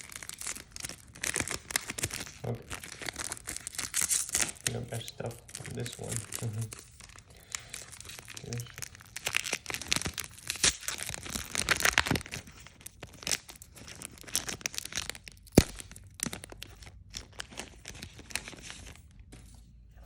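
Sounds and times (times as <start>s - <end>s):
card packaging crackling and tearing: 0.0s - 19.2s.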